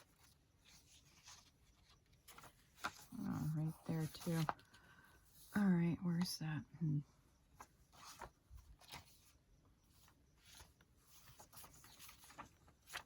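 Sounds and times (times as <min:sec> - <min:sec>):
paper rustling and light taps: 0:00.0 - 0:03.2, 0:03.9 - 0:04.8, 0:10.0 - 0:13.0.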